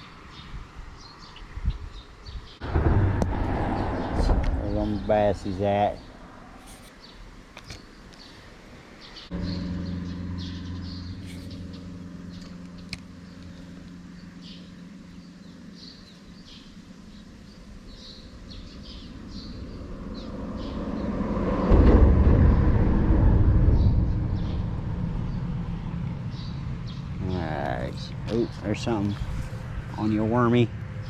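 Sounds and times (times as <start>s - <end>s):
birds chirping: 0.0s - 2.8s, 3.5s - 21.9s, 23.7s - 31.0s
motor vehicle passing by: 2.2s - 6.8s, 9.0s - 31.0s.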